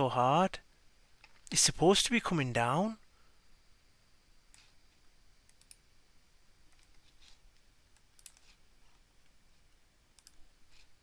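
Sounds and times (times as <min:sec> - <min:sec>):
computer mouse clicks: 0:04.5 - 0:04.8, 0:05.4 - 0:05.8, 0:06.7 - 0:09.4, 0:10.1 - 0:10.9.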